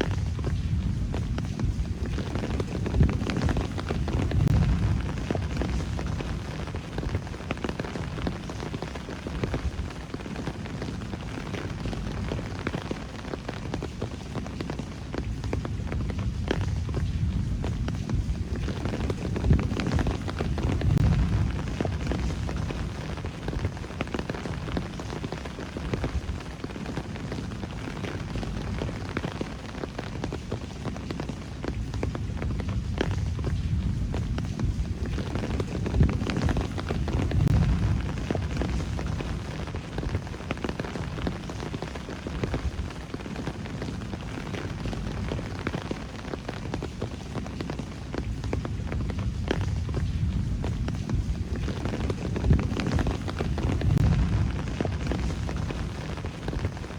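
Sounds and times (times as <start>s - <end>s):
low rumbling: 0.0s - 7.4s, 15.6s - 25.2s, 32.2s - 40.4s, 48.7s - 56.9s
rain hissing with drop ticks: 0.0s - 56.9s.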